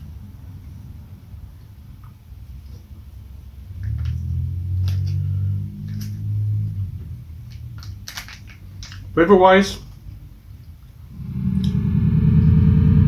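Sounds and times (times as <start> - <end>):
mouth clicks and lip smacks: 7.4 - 9.2.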